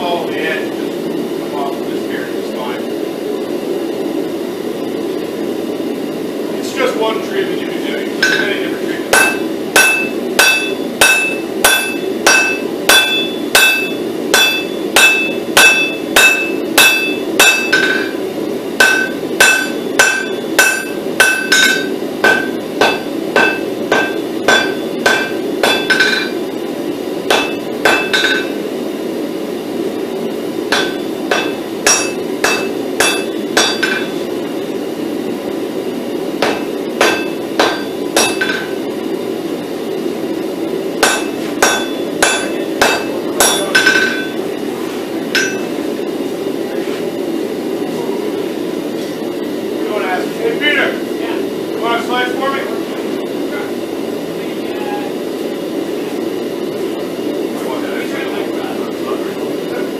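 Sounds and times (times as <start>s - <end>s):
hammer striking steel on anvil: 8.2s - 18.2s, 18.8s - 26.4s, 27.3s - 28.6s, 30.7s - 34.2s, 36.4s - 38.8s, 41.0s - 44.4s, 45.3s - 45.8s.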